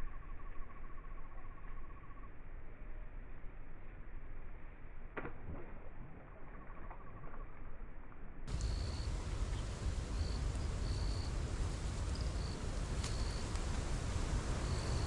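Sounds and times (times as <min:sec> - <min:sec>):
wind buffeting microphone: 0:08.5 - 0:15.0.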